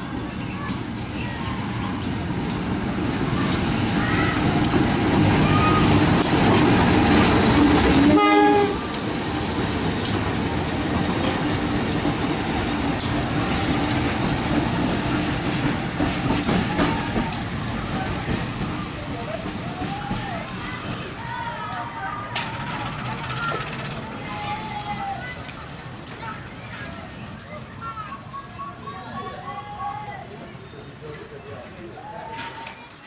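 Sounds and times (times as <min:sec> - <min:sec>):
freight train rumbling past: 0:00.0 - 0:30.2
wheels clacking over rail joints: 0:01.6 - 0:26.4
short train horn tone: 0:08.0 - 0:08.8.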